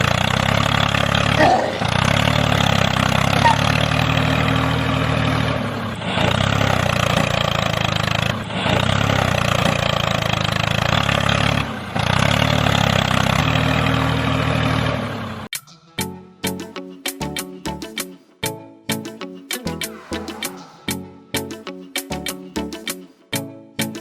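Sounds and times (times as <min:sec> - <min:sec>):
engine running: 0:00.0 - 0:15.5
music: 0:15.5 - 0:24.0.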